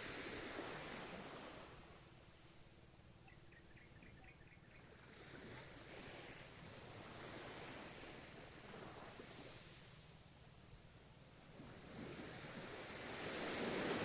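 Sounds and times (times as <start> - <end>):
faint ocean waves washing in: 0.0 - 3.5, 4.4 - 14.0.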